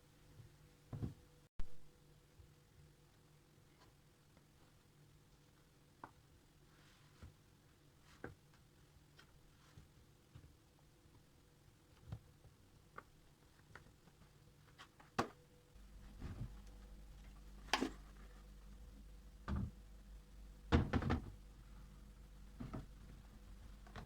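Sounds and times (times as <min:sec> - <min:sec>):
low steady hum: 0:15.4 - 0:24.0
knocks and thuds: 0:20.7 - 0:21.4.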